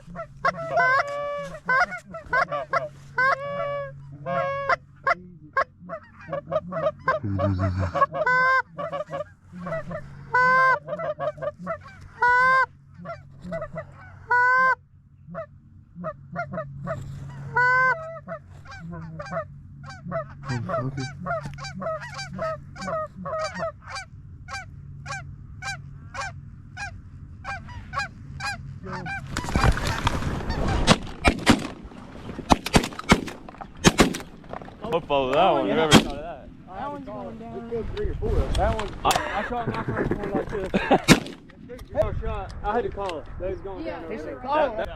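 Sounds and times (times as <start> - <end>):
geese honking: 0.0 - 37.5
shotgun shots: 29.7 - 34.6, 35.8 - 36.3, 41.0 - 41.6.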